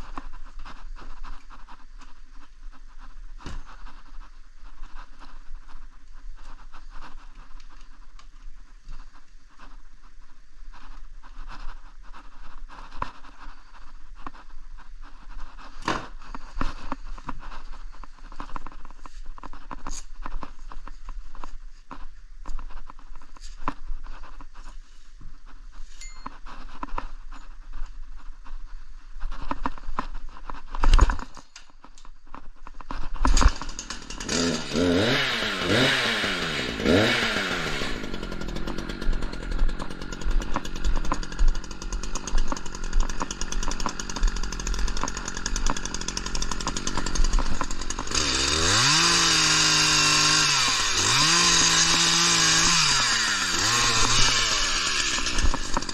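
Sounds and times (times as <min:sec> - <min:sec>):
chainsaw revving: 0:33.2 - 0:55.9.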